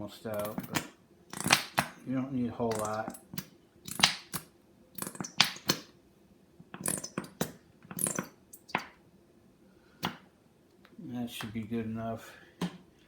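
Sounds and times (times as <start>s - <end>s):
honey container sputtering squirts: 0.3s - 2.0s, 2.6s - 6.0s, 6.7s - 9.0s.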